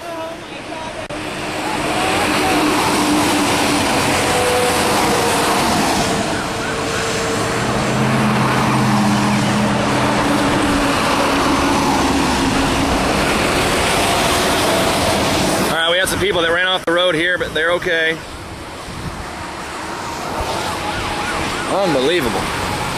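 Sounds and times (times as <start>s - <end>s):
vehicle engine hum: 0.0s - 16.5s
highway road noise: 0.0s - 22.9s.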